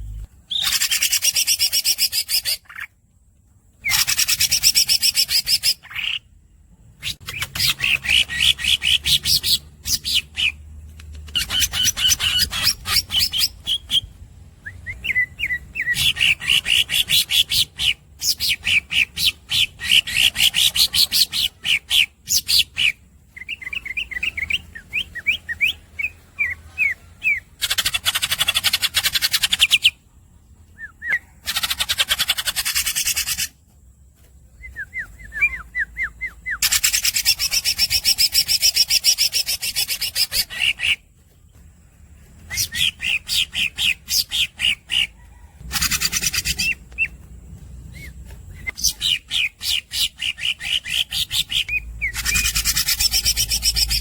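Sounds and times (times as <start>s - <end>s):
squeaky bird chirps: 0.0s - 3.0s, 11.2s - 14.1s, 15.0s - 30.0s, 30.8s - 33.6s, 34.7s - 41.1s, 42.4s - 47.2s, 47.8s - 54.0s
harsh buzzy bird calls: 31.0s - 33.6s, 35.1s - 41.1s, 42.3s - 47.2s, 47.8s - 54.0s
bird singing rattling trills: 34.4s - 54.0s.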